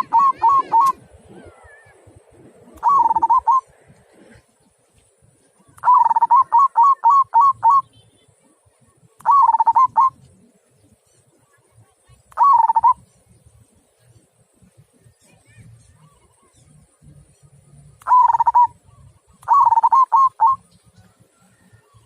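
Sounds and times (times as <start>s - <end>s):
zebra dove cooing: 0.0s - 4.4s, 5.6s - 7.8s, 9.2s - 10.5s, 12.4s - 13.0s, 18.0s - 20.7s.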